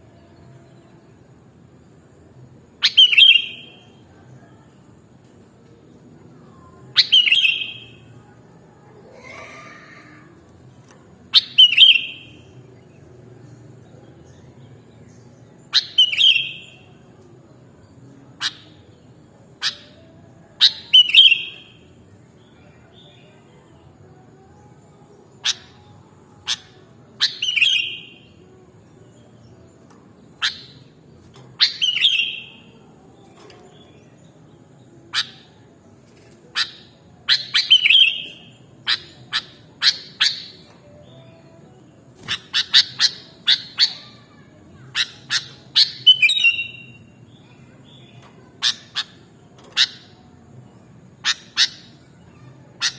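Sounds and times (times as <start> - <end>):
bird calling with sharp notes: 26.4 - 28.4, 30.4 - 32.8, 36.5 - 41.0, 42.2 - 50.4, 51.2 - 52.9.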